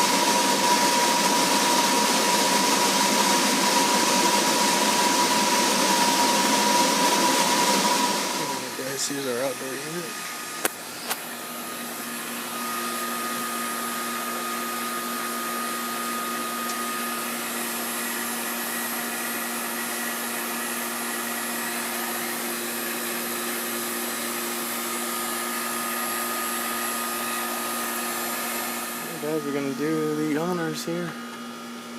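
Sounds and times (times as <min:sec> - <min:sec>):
air conditioner blower rushing: 0:00.0 - 0:31.9
steady hum: 0:28.2 - 0:31.2.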